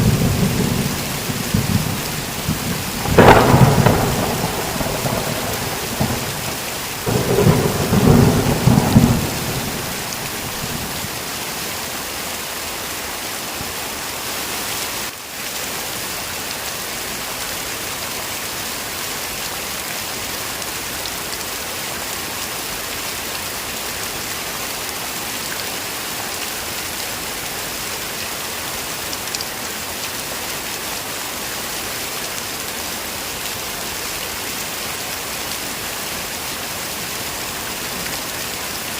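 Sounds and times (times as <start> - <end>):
thunder rumbling: 0.0 - 11.2
heavy rain: 0.0 - 38.9.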